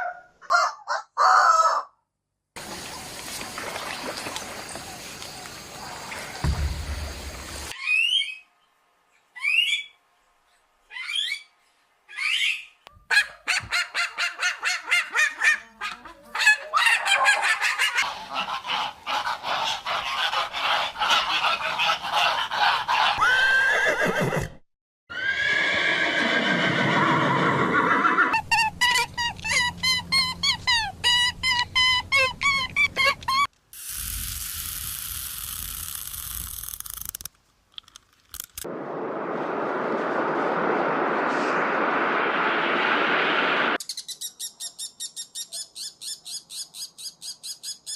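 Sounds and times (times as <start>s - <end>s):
rapid repeated animal calls: 12.2s - 23.6s.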